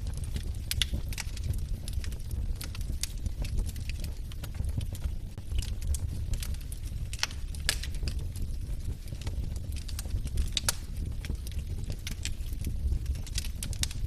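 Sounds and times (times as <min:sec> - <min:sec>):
low steady fire rumble: 0:00.0 - 0:14.0
wood fire crackling and popping: 0:00.0 - 0:14.0.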